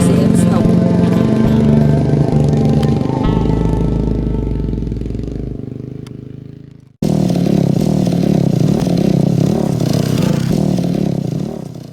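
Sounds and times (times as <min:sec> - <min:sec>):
dirt bike engine running: 0:00.0 - 0:11.9.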